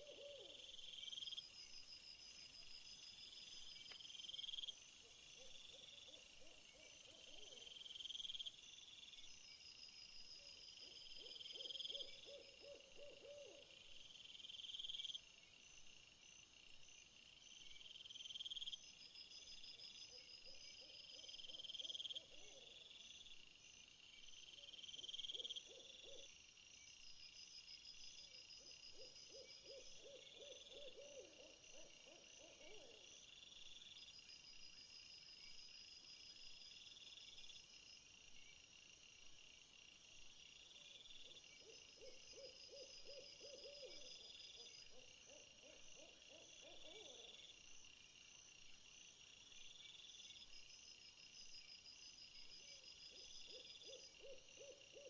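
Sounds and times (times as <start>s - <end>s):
low trilled owl-like call: 11.6s - 13.6s.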